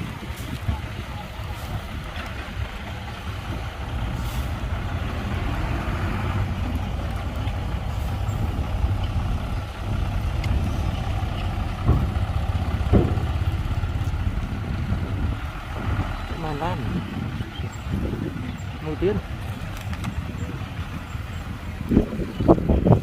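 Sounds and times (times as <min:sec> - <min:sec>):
diesel engine droning: 0:00.0 - 0:23.0
sharp thumps: 0:07.5 - 0:16.1.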